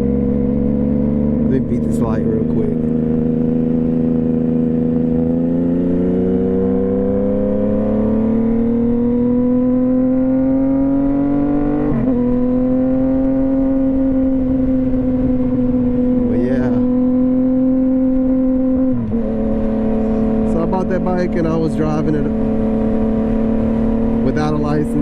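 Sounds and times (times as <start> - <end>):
motorcycle engine accelerating: 0.0 - 25.0.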